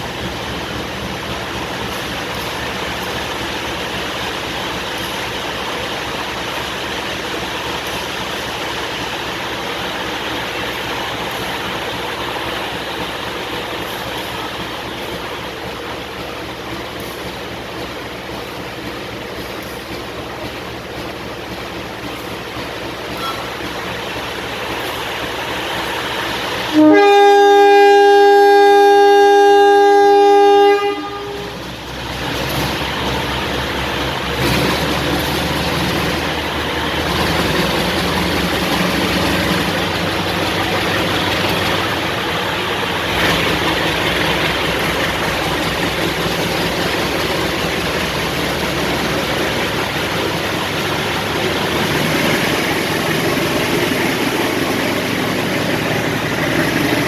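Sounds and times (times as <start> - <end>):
train rumbling past: 0.0 - 57.0
locomotive air horn: 26.7 - 31.8.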